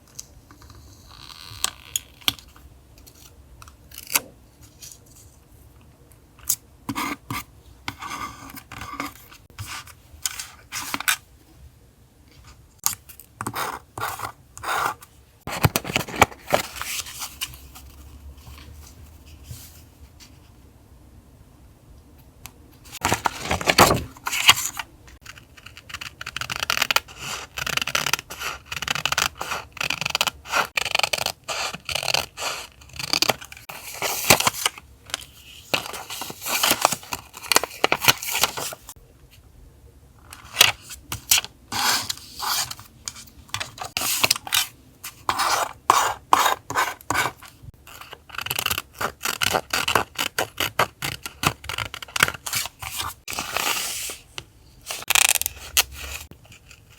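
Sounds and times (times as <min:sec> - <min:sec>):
paper scraping and rustling: 0:15.5 - 0:19.8, 0:22.9 - 0:24.8, 0:33.1 - 0:39.0, 0:51.7 - 0:56.9.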